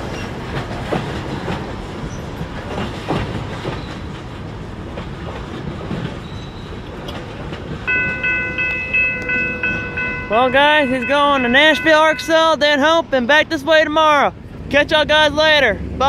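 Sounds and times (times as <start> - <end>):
train wheels clacking: 0.0 - 12.7
freight train rumbling: 0.0 - 16.0
crossing bell ringing: 7.8 - 13.0.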